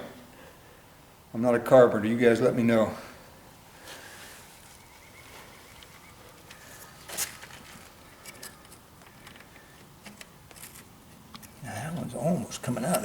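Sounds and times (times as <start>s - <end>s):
hand tool clicking and scraping: 6.4s - 13.0s.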